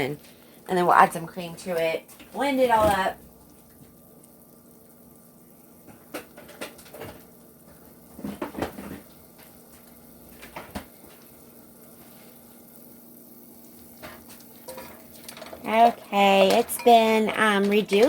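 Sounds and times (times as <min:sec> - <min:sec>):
faint sizzle: 0:00.0 - 0:18.0
spoon scraping a pan: 0:13.9 - 0:18.0.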